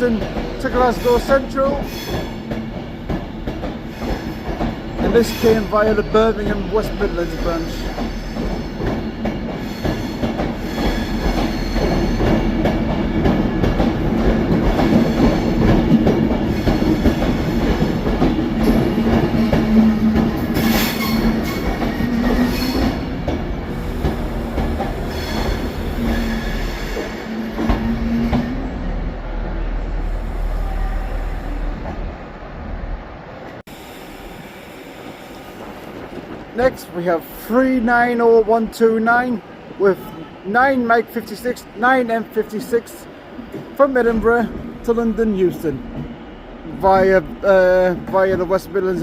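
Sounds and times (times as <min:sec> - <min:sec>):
train wheels clattering: 0:00.0 - 0:28.6.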